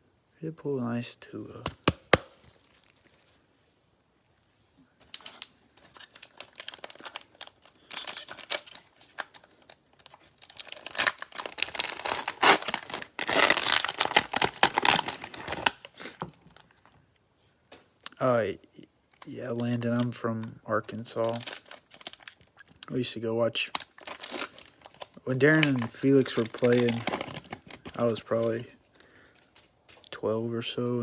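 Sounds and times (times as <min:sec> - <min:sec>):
plastic wrapper crinkling: 0:01.8 - 0:03.5, 0:05.0 - 0:17.0, 0:19.1 - 0:30.1
wrapper being torn open: 0:02.0 - 0:03.3, 0:05.0 - 0:16.0, 0:21.2 - 0:22.8, 0:23.6 - 0:28.6.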